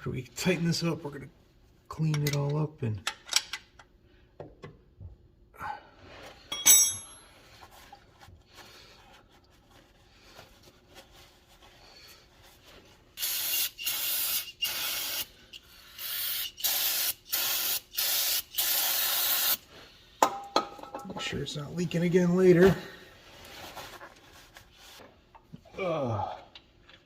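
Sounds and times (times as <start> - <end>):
metallic clink: 6.5 - 7.3
aerosol can spraying: 13.2 - 15.3, 16.0 - 19.6.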